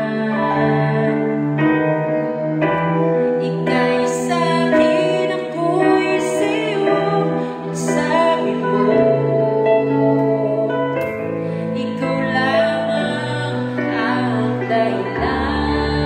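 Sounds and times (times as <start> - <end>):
sustained keyboard chords: 0.0 - 16.0.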